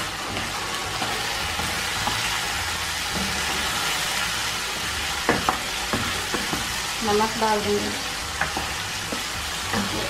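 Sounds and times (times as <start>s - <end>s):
chicken sizzling in oil: 0.0s - 10.0s
wooden spoon knocking pan: 5.2s - 6.8s.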